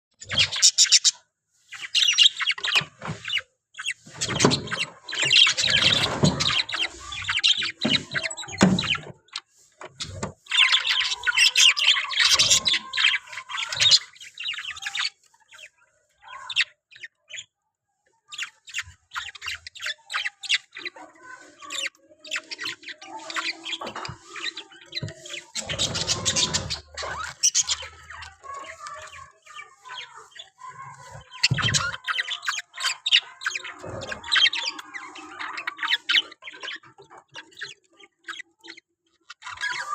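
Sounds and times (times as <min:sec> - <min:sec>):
parrot chirping and chattering: 0:00.2 - 0:39.9.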